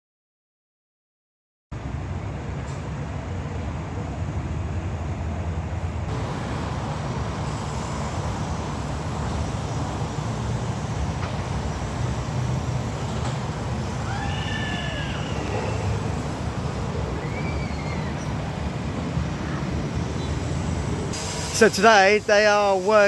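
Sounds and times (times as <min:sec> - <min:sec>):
heavy machinery engine rumble: 0:02.2 - 0:22.2
even hiss: 0:06.1 - 0:23.0.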